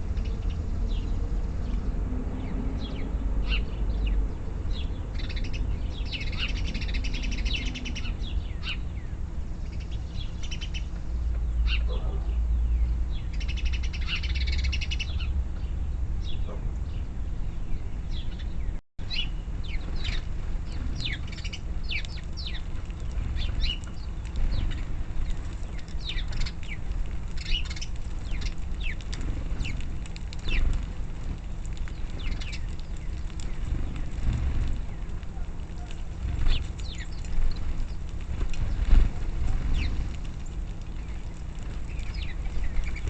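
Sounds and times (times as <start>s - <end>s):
songbirds chirping: 0.0s - 43.0s.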